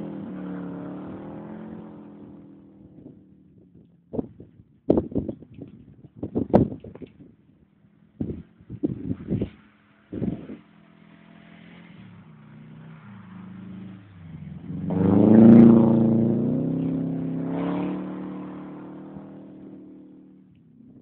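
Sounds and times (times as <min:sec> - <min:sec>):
car engine revving: 0:00.0 - 0:03.6, 0:09.2 - 0:21.0.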